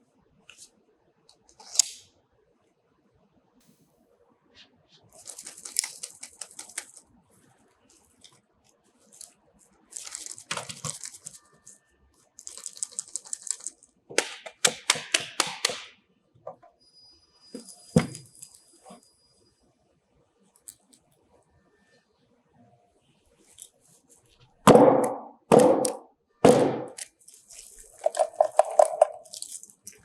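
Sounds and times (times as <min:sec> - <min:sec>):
hard plastic clicking and rattling: 0:25.0 - 0:30.0.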